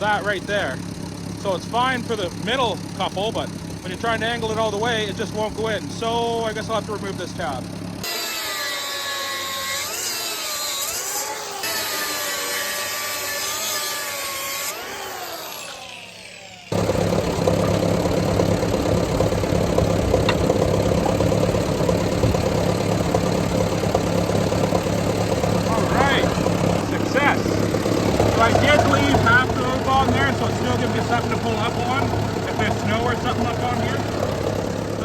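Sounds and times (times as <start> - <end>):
tractor engine idling: 0.0 - 8.0, 16.2 - 35.0
power tool cutting: 0.0 - 35.0.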